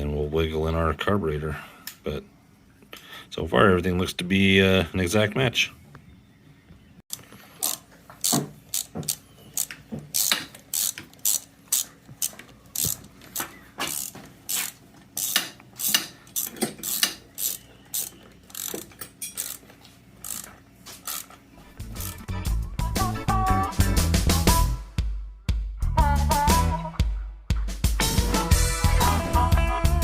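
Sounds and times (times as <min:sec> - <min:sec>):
ratchet wrench clicking: 0:07.1 - 0:13.1, 0:13.8 - 0:21.3, 0:22.0 - 0:22.2.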